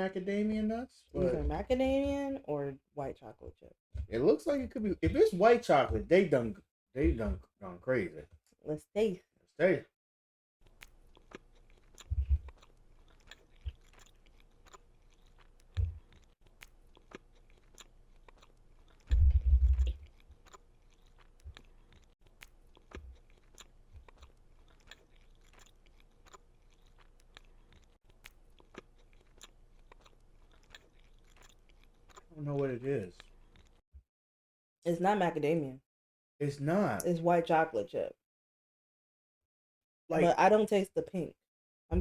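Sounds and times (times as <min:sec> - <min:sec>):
people chewing cookie: 0:10.6 - 0:33.8
mouth clicks and smacks: 0:10.7 - 0:32.3
dull low thumps: 0:12.1 - 0:12.6, 0:19.1 - 0:20.1.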